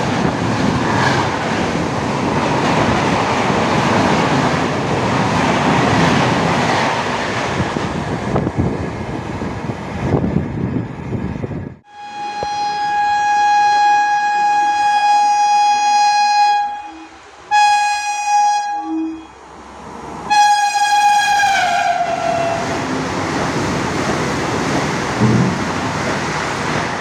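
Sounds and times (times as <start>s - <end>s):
locomotive horn blasts: 11.9s - 19.4s, 20.3s - 22.7s
train rushing past: 19.4s - 27.0s.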